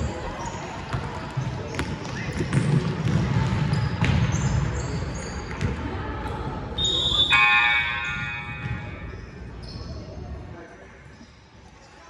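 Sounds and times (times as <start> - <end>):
sneakers squeaking: 0.2 - 12.0
basketball bouncing on gym floor: 0.9 - 4.7
steady high tone: 7.3 - 9.1.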